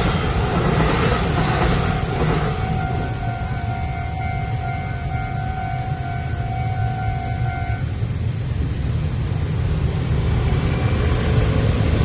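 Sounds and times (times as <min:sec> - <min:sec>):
low rumble of passing vehicles: 0:00.0 - 0:12.0
level-crossing alarm ringing: 0:01.9 - 0:07.8.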